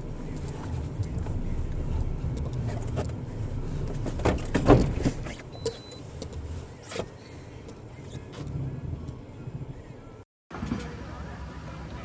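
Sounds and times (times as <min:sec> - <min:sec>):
vehicle driving rumble: 0:00.0 - 0:12.0.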